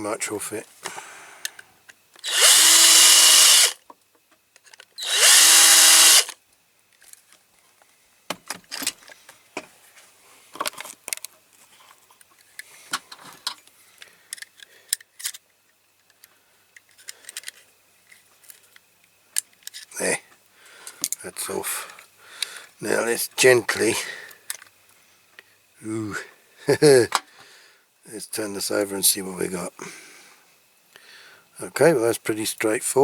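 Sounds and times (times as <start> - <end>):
electric drill drilling: 2.2 - 3.8, 5.0 - 6.4.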